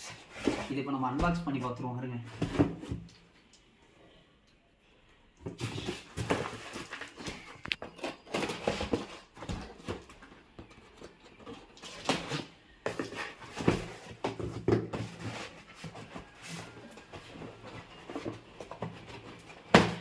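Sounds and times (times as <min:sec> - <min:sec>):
cardboard box rustling and scraping: 0:05.5 - 0:10.3, 0:11.4 - 0:20.0.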